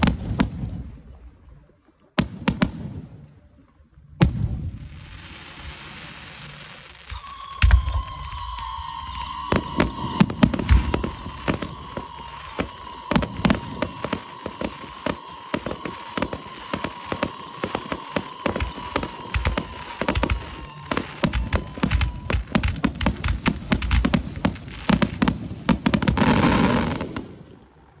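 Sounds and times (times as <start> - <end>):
fireworks cracking and booming: 0.0 - 1.1, 2.2 - 3.2, 4.2 - 27.6
steady high tone: 7.1 - 15.0.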